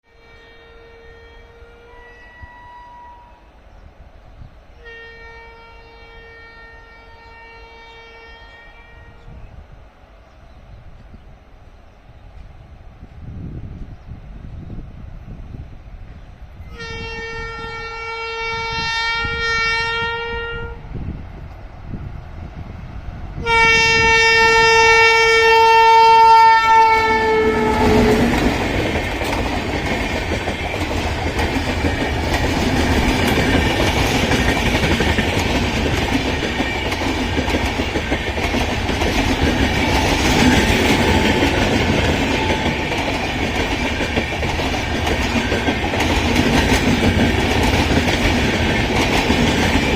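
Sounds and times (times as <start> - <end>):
train horn blasts: 0.0 - 3.6, 4.8 - 9.6, 16.6 - 21.0, 23.4 - 28.6
train coaches rumbling past: 0.0 - 49.9.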